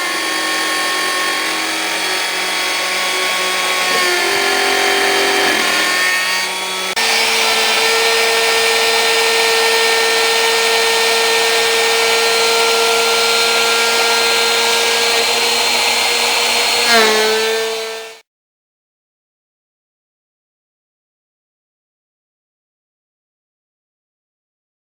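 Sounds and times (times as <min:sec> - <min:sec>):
router spindle whining: 0:00.0 - 0:18.2.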